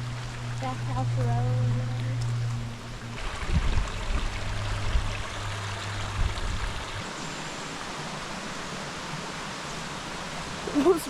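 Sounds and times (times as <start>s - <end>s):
low rumble with dull thumps: 0.0s - 7.1s
creek water rushing: 0.0s - 11.0s.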